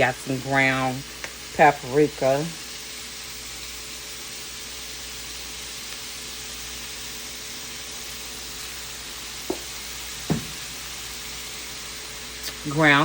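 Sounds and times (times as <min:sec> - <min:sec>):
chicken sizzling in a skillet: 0:00.0 - 0:13.0
short knocks: 0:10.3 - 0:10.6.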